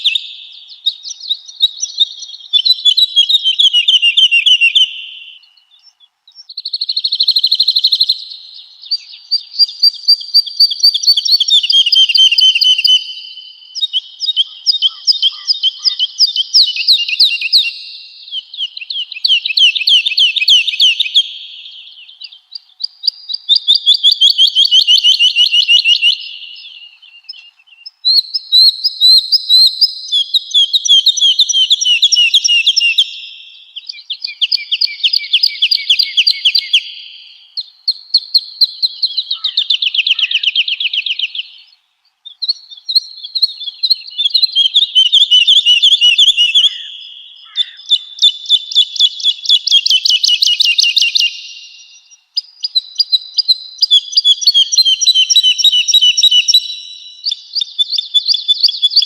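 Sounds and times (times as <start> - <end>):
woodlark singing: 0.0 - 59.0.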